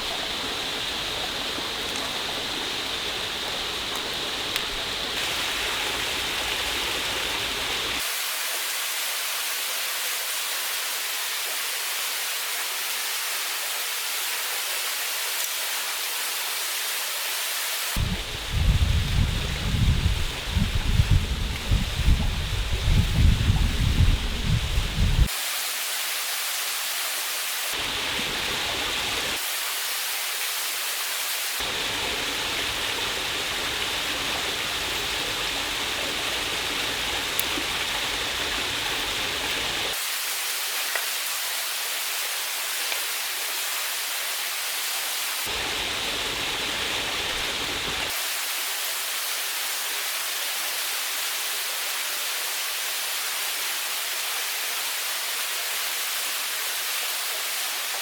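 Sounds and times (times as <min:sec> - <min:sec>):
waterfall rushing: 0:00.0 - 0:11.9, 0:19.7 - 0:51.6.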